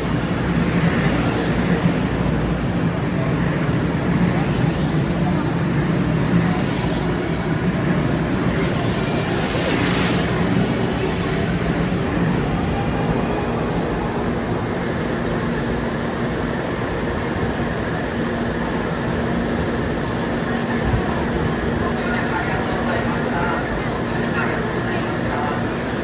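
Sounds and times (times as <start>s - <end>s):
train motor hum: 0.0s - 16.5s
train wheels rumbling on rail: 0.0s - 26.0s.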